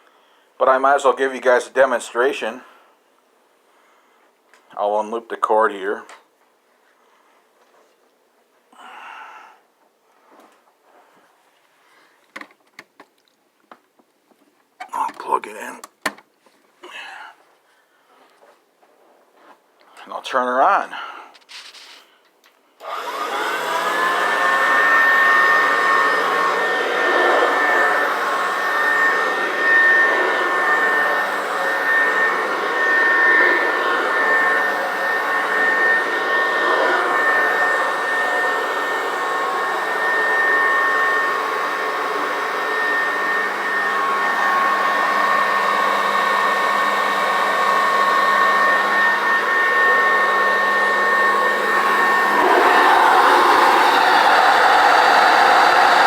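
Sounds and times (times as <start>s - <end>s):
vacuum cleaner motor whining: 22.8s - 56.0s.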